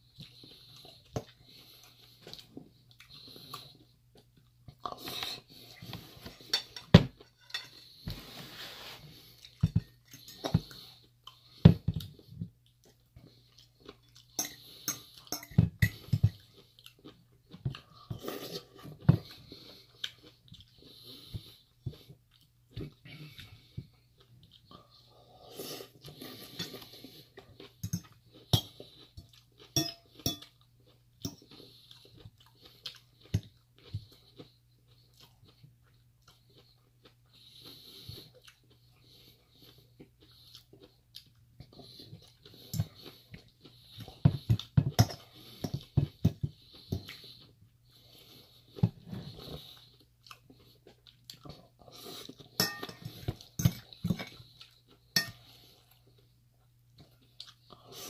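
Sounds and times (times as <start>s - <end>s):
chewing and crunching salad: 0.0s - 58.0s
metal fork clinking on bowl: 14.4s - 15.6s, 29.8s - 30.5s, 52.6s - 53.8s, 55.2s - 55.4s.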